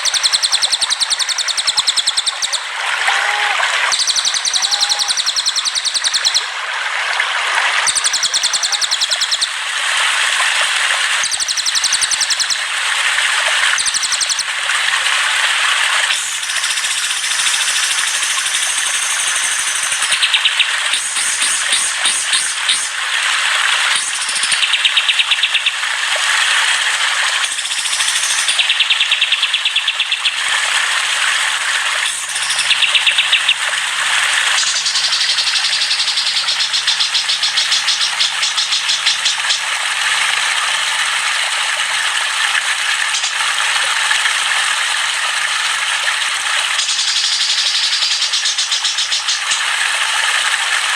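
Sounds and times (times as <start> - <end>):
rapid rattling bird trills: 0.0 - 2.7, 3.9 - 6.5, 7.8 - 10.3, 11.1 - 12.8, 13.6 - 14.5, 16.1 - 26.8, 27.4 - 30.8, 32.0 - 39.7, 43.0 - 43.8, 46.7 - 50.3
songbirds chattering: 0.0 - 2.7, 3.8 - 6.5, 7.8 - 9.6, 11.2 - 12.6, 16.1 - 23.0, 23.9 - 25.8, 27.4 - 30.4, 32.0 - 33.7, 34.5 - 39.6, 46.8 - 49.7.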